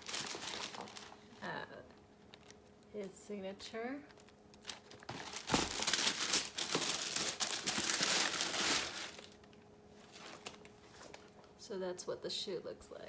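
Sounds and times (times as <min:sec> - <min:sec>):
packing paper crinkling: 0:00.0 - 0:01.4, 0:04.1 - 0:11.3.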